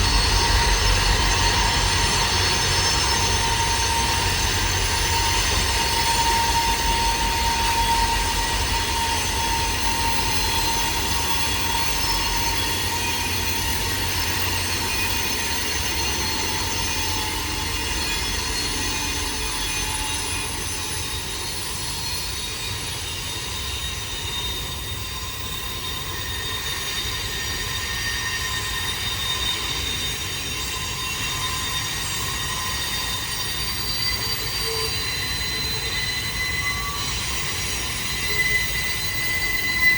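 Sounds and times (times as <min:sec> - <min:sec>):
train cars rumbling: 0:00.0 - 0:22.0
wheel flange squeal: 0:00.0 - 0:39.9.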